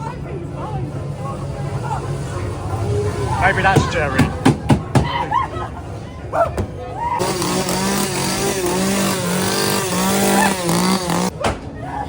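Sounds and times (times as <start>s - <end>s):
chainsaw engine revving: 7.2s - 11.3s.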